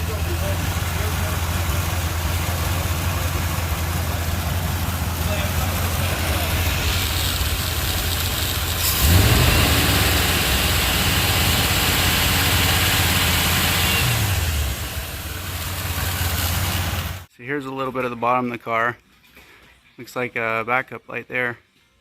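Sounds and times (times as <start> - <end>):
car engine idling and revving: 0.0 - 17.3.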